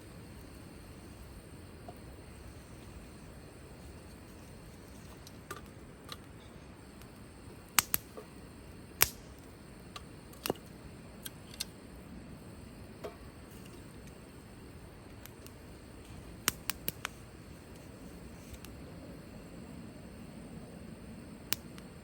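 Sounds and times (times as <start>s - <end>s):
wood fire crackling: 0.0s - 20.1s
sharp pops of fire: 6.8s - 11.8s, 15.0s - 17.3s, 21.4s - 22.0s.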